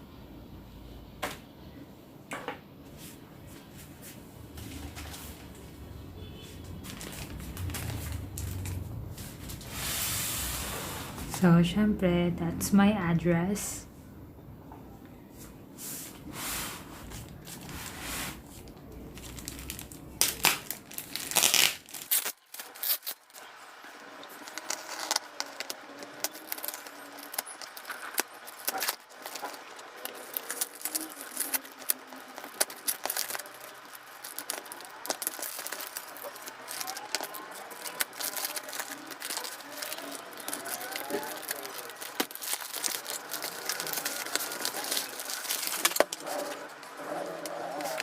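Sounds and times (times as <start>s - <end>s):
packaging crinkling and tearing: 6.7s - 8.9s, 17.2s - 48.0s.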